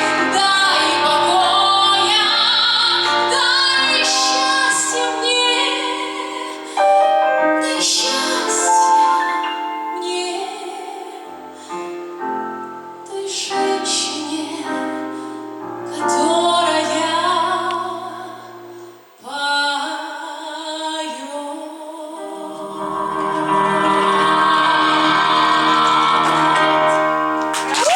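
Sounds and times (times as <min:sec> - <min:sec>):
woman singing wordlessly: 0:00.0 - 0:11.5, 0:13.0 - 0:15.1, 0:15.9 - 0:18.5, 0:19.2 - 0:27.0.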